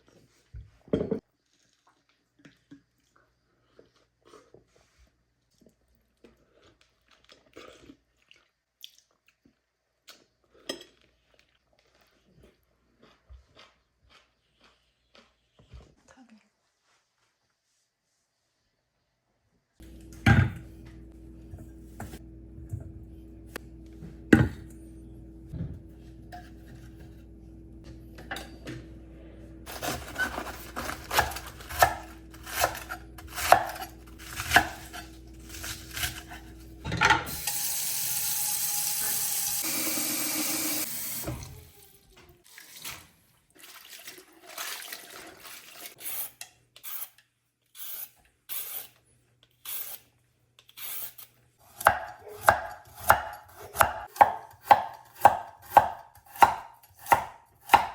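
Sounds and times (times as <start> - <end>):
tap water running: 29.6 - 46.0
scraping and clattering: 29.7 - 31.9.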